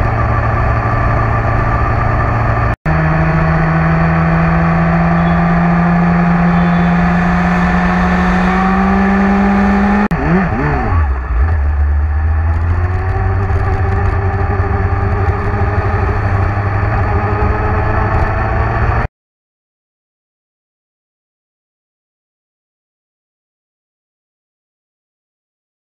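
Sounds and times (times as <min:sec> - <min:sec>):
motorcycle engine droning: 0:00.0 - 0:19.1.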